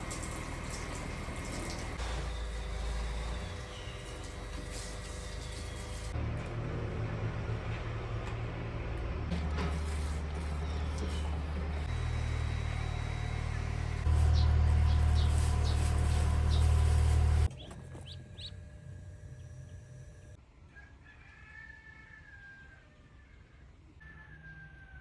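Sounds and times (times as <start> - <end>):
low steady rumble: 6.1 - 20.4
rooster crowing: 20.7 - 23.4, 24.0 - 25.0.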